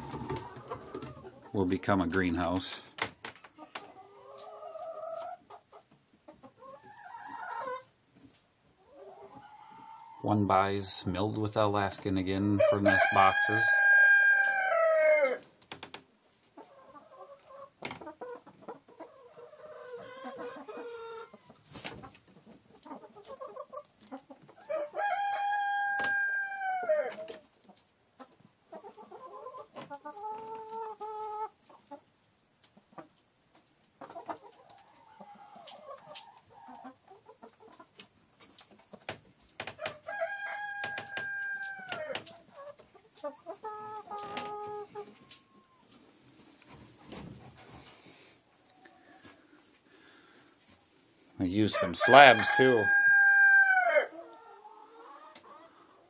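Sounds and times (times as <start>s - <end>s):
hens clucking: 0.0s - 56.0s
rooster crowing: 12.6s - 15.4s, 24.7s - 27.1s, 40.1s - 42.2s, 51.7s - 54.2s.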